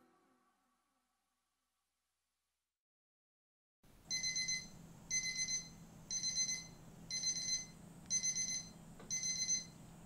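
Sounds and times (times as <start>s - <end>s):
electronic alarm beeping: 4.1s - 9.8s.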